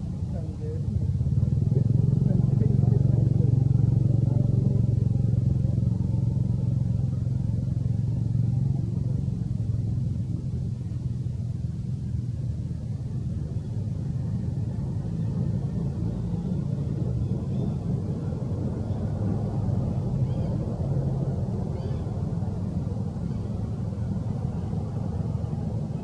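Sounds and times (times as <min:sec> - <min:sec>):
low engine hum: 0:00.0 - 0:26.0.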